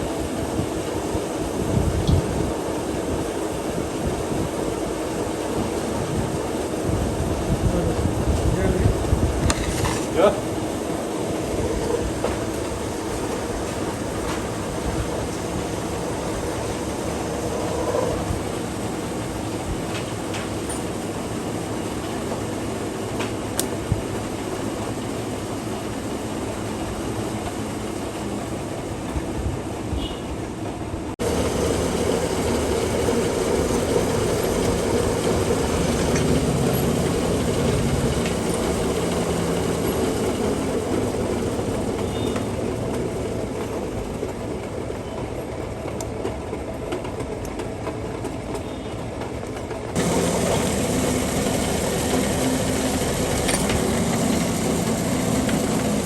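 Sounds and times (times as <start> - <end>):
metal lathe running: 31.2 - 44.5, 50.0 - 56.0.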